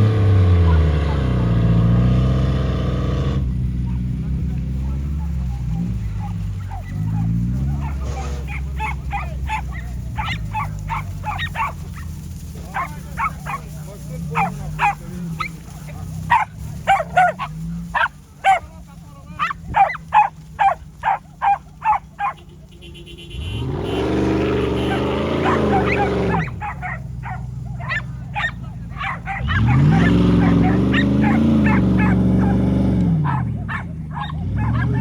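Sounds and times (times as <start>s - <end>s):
vehicle engine revving: 0.0s - 35.0s
dog barking: 5.2s - 18.7s, 19.3s - 22.6s, 24.6s - 35.0s.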